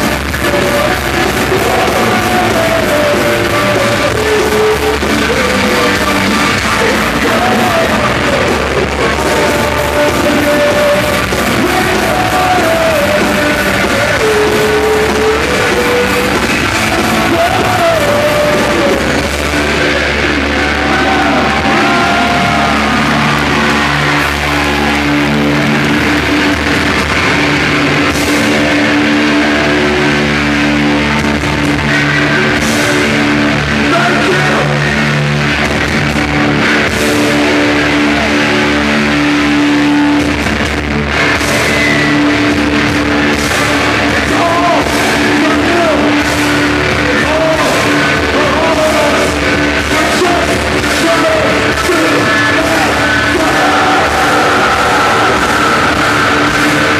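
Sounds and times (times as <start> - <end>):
person singing: 0.0 - 40.5, 41.1 - 56.9
distorted guitar chords: 0.0 - 56.9.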